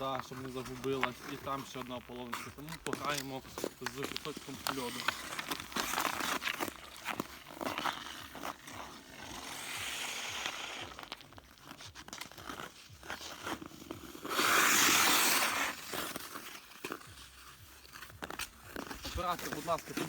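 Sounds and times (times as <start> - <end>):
ice skates scraping on ice: 0.0 - 20.0.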